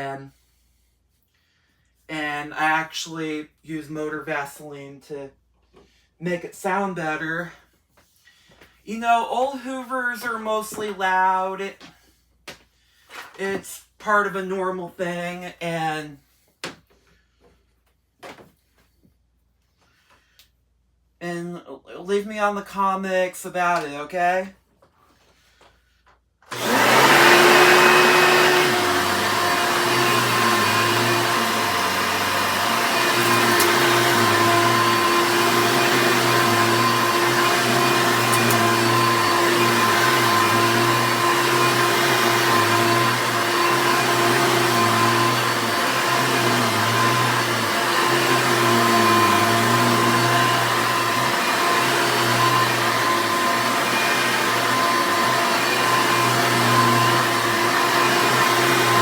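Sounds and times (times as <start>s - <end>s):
vacuum cleaner whining: 26.5s - 59.0s.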